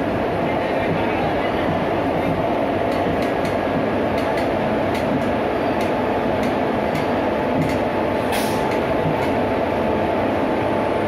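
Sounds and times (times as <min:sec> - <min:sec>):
train rumbling on track: 0:00.0 - 0:11.0
faint regular track clicks: 0:00.4 - 0:07.9, 0:08.6 - 0:09.4.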